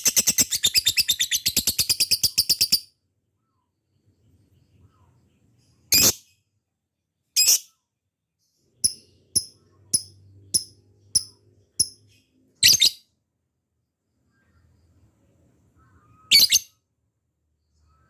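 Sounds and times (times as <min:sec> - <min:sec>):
lovebird chirping: 0:00.0 - 0:06.6, 0:08.4 - 0:13.2, 0:15.7 - 0:16.9.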